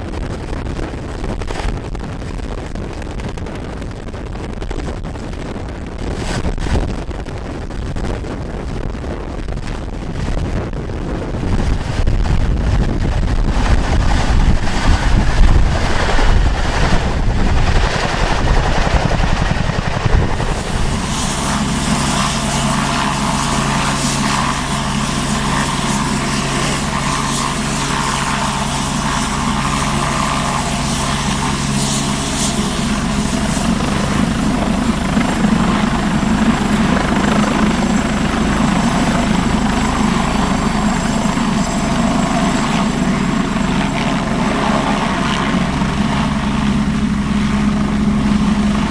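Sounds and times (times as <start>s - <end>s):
wind buffeting microphone: 0.0s - 48.9s
helicopter rotor and engine drone: 11.4s - 48.9s.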